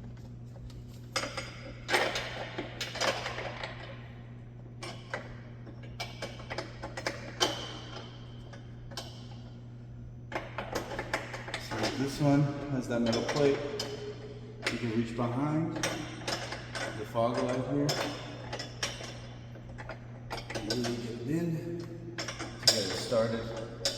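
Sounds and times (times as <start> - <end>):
steady low hum: 0.0 - 23.9
metal bolts clicking and scraping: 22.2 - 23.9.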